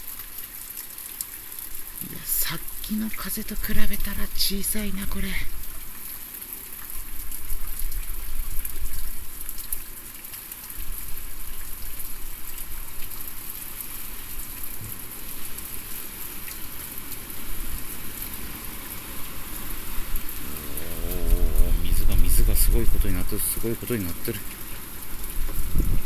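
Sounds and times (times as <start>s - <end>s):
heavy rain falling: 0.0s - 26.0s
wind gusts rumbling on microphone: 19.0s - 26.0s.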